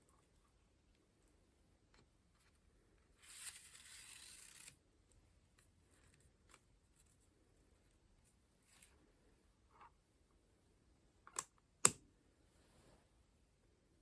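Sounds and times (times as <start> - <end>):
paper page turning: 3.2 - 4.8.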